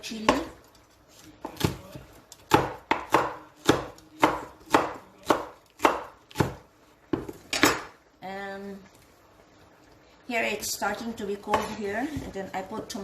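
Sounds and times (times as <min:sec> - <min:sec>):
knife chopping on cutting board: 0:01.2 - 0:07.9.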